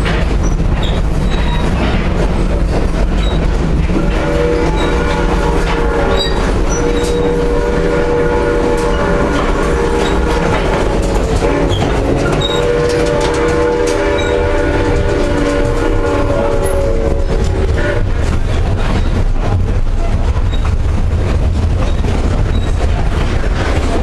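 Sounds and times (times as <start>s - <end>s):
train wheels rumbling on rails: 0.0s - 24.0s
steam locomotive chime whistle: 4.0s - 18.2s.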